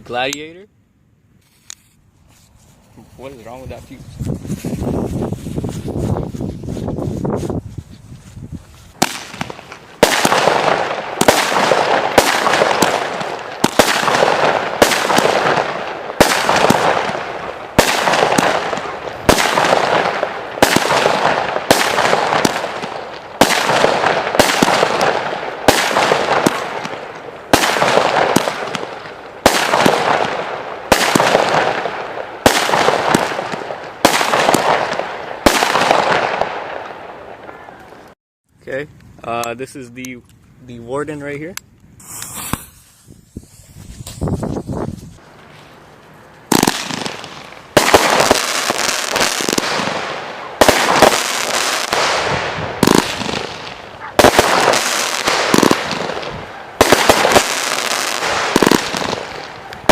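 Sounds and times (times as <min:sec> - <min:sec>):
fireworks banging and crackling: 0:02.3 - 0:38.2, 0:41.4 - 0:59.9.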